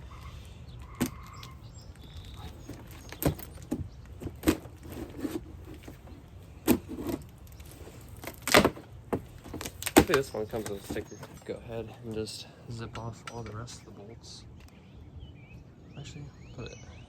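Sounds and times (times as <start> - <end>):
clicks and knocks of hard parts: 0.8 - 11.5.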